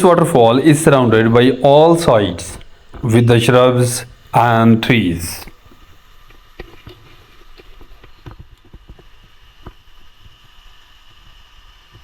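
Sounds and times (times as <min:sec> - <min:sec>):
distant waterfall rushing: 0:00.0 - 0:05.4.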